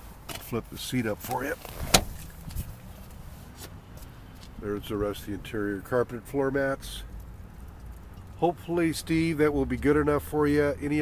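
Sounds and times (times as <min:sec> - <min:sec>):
seat handling noise: 0:01.2 - 0:03.7.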